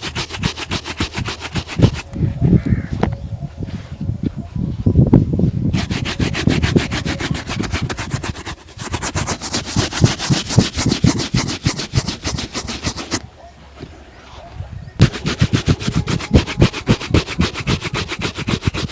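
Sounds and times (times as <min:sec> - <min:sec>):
brush scrubbing shoe leather: 0:00.0 - 0:02.1, 0:05.7 - 0:13.2, 0:15.0 - 0:18.9.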